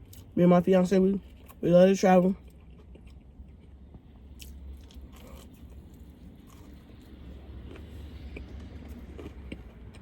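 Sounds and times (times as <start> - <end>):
person eating: 2.4 - 10.0.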